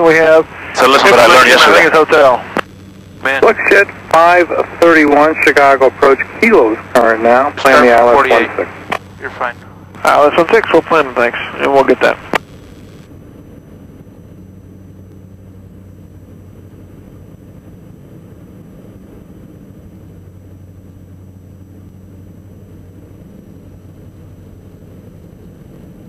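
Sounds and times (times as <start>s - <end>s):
aircraft cockpit engine drone: 0.0s - 26.0s.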